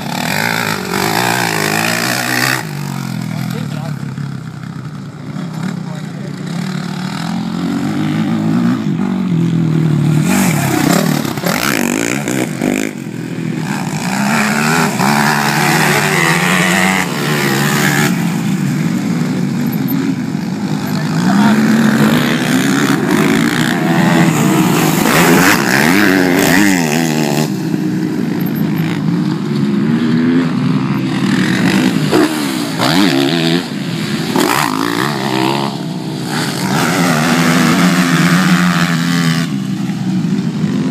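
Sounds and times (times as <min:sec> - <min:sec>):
motocross engines revving: 0:00.0 - 0:40.9.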